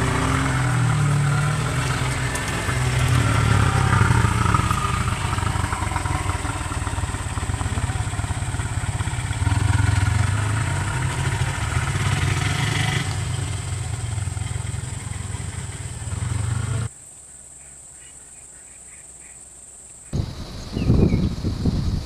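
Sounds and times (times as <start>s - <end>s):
vehicle engine rumbling: 0.0s - 16.9s.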